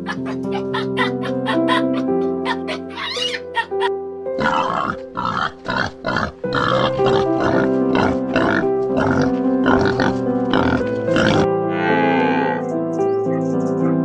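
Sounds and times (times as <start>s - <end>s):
background music sustained tones: 0.0s - 14.0s
wild boar grunting: 4.4s - 11.5s.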